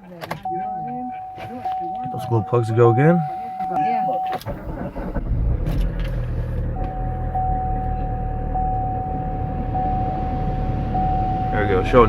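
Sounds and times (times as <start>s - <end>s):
diesel engine running: 0.4s - 12.0s.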